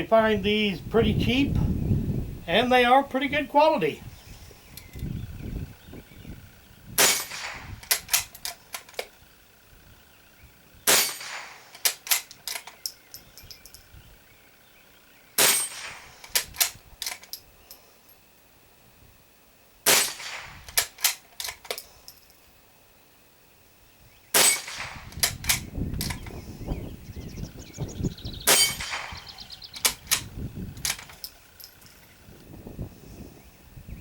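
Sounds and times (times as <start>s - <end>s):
rifle shots: 7.0s - 9.0s, 10.8s - 12.7s, 15.4s - 17.2s, 19.8s - 21.6s, 24.4s - 25.7s, 28.4s - 31.2s
rifle bolt metallic clicks: 7.0s - 9.2s, 10.9s - 13.9s, 15.4s - 17.8s, 19.9s - 21.9s, 24.4s - 26.4s, 28.5s - 32.0s.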